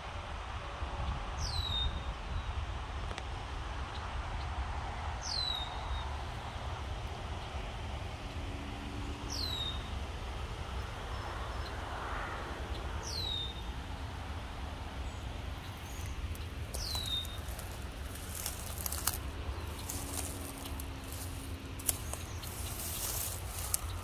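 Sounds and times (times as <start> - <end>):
low wind rumble: 0.0 - 24.0
crackles and rustles: 15.7 - 24.0.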